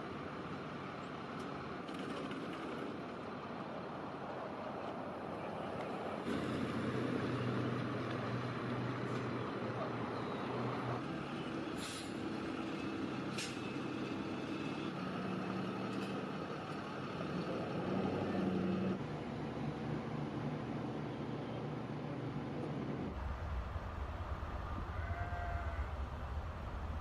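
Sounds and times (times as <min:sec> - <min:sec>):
short hisses: 0:11.8 - 0:12.2.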